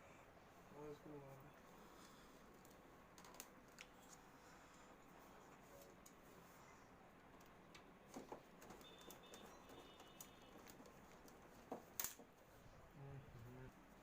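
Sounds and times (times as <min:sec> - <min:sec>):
faint clicks and knocks: 0:02.5 - 0:04.2.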